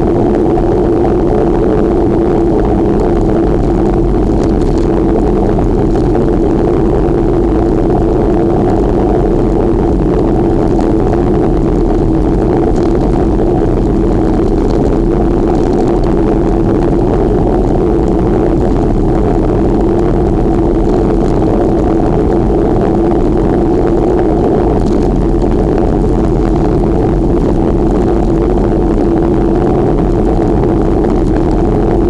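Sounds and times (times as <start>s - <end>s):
wind and road noise: 0.0s - 32.0s.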